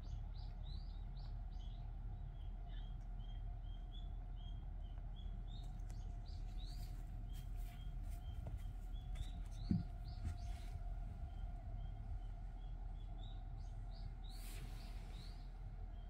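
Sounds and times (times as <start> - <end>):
low steady hum: 0.0 - 16.0
small birds chirping: 0.0 - 16.0
soft thump: 9.6 - 10.5.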